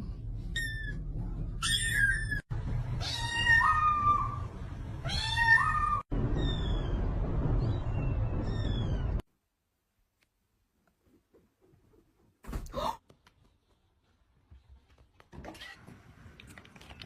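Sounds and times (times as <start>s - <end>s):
cat meowing: 3.0s - 7.0s.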